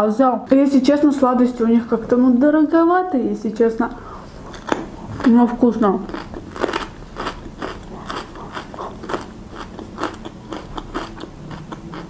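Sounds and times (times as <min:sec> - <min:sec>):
person chewing with clicks and smacks: 0:04.4 - 0:12.0.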